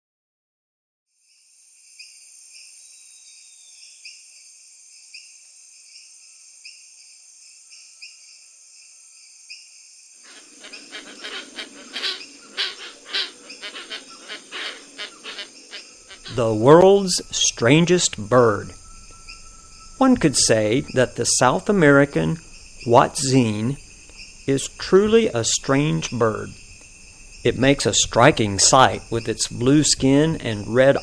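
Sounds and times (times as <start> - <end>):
pulsing insect chorus: 1.3 - 31.0
harsh raspy bird calls: 10.2 - 19.4.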